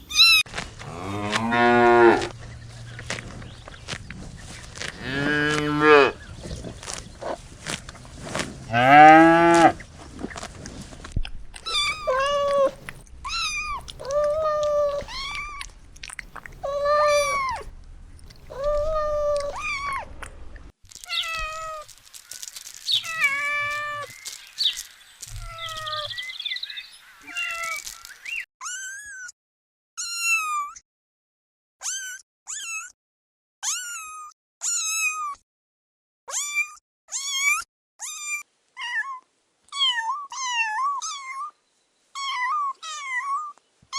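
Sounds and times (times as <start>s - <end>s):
high-pitched animal cries: 0.0s - 1.7s, 11.6s - 15.7s, 16.3s - 17.7s, 18.3s - 20.1s, 28.6s - 29.3s, 31.8s - 33.0s, 33.6s - 35.4s, 36.3s - 41.6s, 42.2s - 43.6s
long low animal calls: 11.6s - 17.7s, 18.3s - 20.2s.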